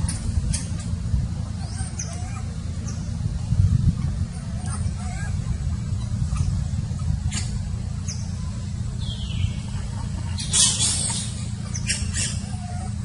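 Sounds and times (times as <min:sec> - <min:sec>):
low rumble: 0:00.0 - 0:13.0
monkey squeaking and squealing: 0:01.5 - 0:03.1, 0:04.0 - 0:13.0.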